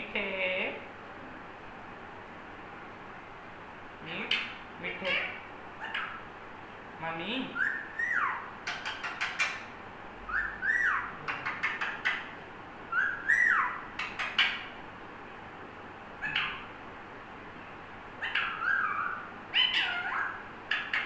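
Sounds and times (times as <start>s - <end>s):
parrot call: 4.3s - 6.3s, 7.5s - 9.7s, 10.3s - 14.8s, 16.2s - 16.7s, 18.2s - 21.0s
parrot whistling: 7.6s - 8.5s, 10.3s - 12.2s, 12.9s - 14.6s, 18.2s - 21.0s.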